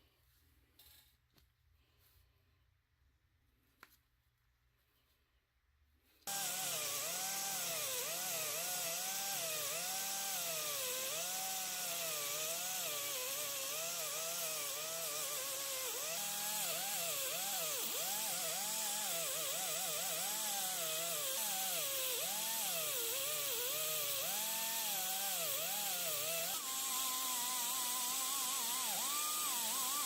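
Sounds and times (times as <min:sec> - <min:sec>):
power tool motor whine: 0:06.3 - 0:30.0.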